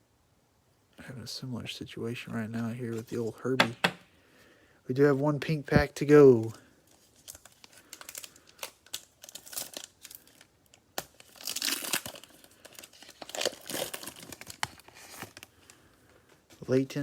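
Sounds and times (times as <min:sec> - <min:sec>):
cellophane wrapper crinkling: 0:06.8 - 0:15.9.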